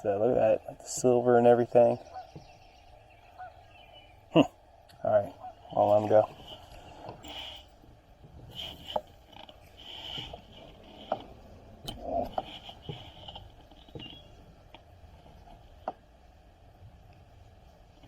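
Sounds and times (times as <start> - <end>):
fishing gear clicking and knocking: 4.8 - 16.0.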